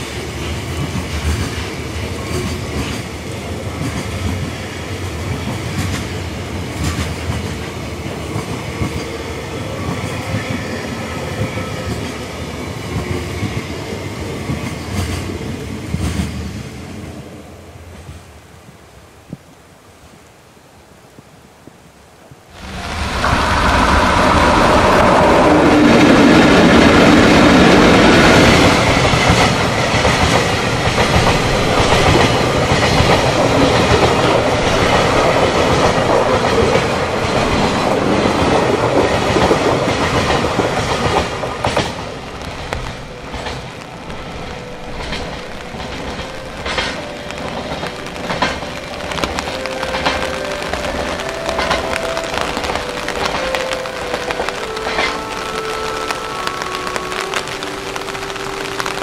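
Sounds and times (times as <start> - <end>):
freight train wheels rumbling: 0.0 - 18.6, 22.5 - 59.0
wheels clicking over rail joints: 23.1 - 59.0.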